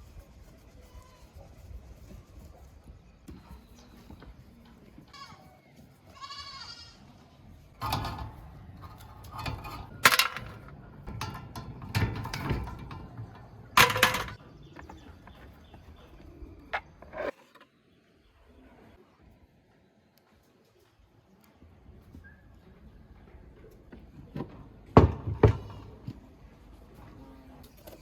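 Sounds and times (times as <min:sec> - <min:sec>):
metal parts knocking and clanking: 0:07.8 - 0:15.0.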